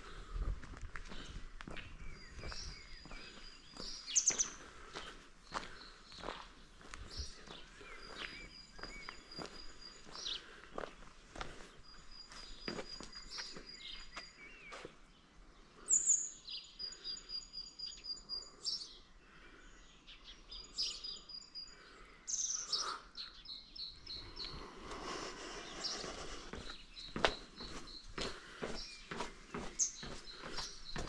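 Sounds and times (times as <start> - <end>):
footsteps ticking: 0.0 - 14.8, 24.3 - 31.0
songbirds calling: 0.0 - 31.0.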